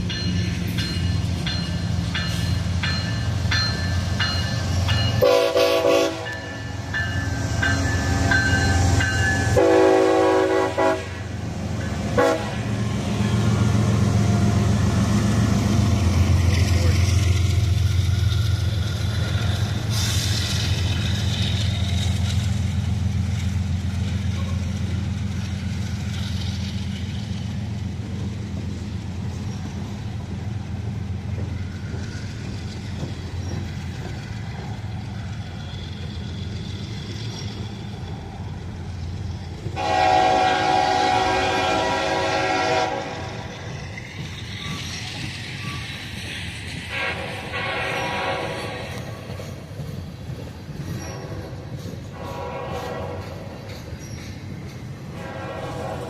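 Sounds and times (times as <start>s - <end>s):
train rumbling by: 0.0s - 56.0s
locomotive air horn blast: 5.2s - 6.4s, 9.5s - 11.3s, 12.2s - 12.7s, 39.8s - 43.5s, 46.9s - 49.1s, 51.1s - 53.5s, 55.1s - 56.0s.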